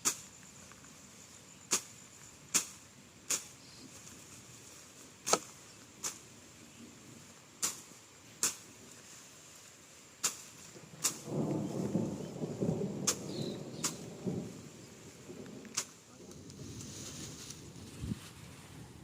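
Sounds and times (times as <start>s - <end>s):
blade swishing through grass: 0.0s - 0.4s, 1.7s - 6.3s, 7.6s - 11.8s
rustling of cut grass: 0.0s - 19.0s.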